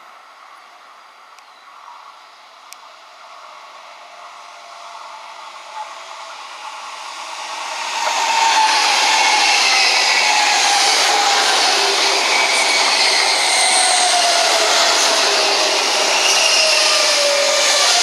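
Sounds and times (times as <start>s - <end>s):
high-speed train passing: 0.0s - 18.0s
train whine falling in pitch: 4.0s - 18.0s.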